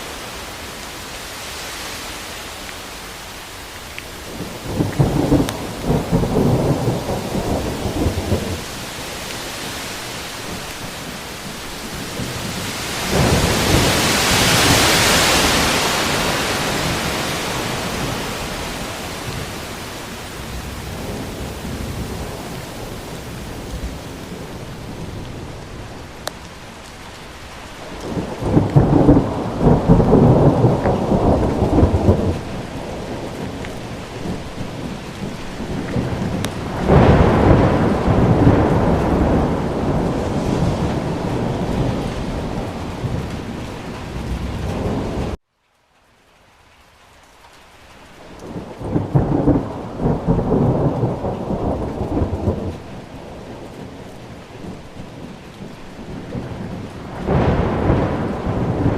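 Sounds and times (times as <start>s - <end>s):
steady rain: 0.0s - 58.9s
thunder: 4.4s - 8.8s, 11.9s - 19.8s, 28.0s - 45.4s, 48.4s - 58.9s.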